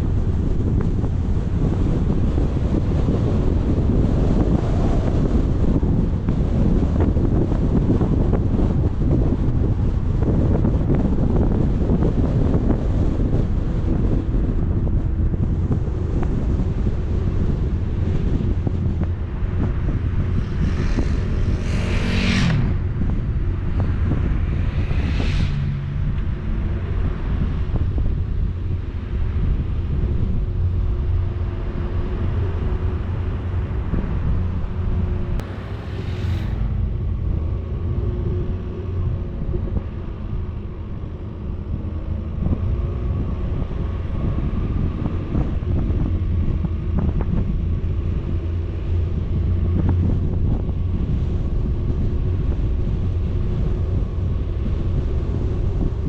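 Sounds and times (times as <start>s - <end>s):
vehicle engine and road rumble: 0.0s - 56.0s
wind buffeting microphone: 0.0s - 56.0s
rushing whooshes: 17.0s - 40.2s.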